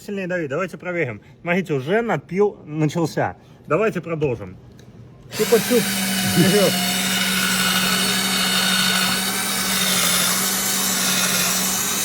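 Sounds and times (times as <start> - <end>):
rotary tool grinding: 5.3 - 12.0.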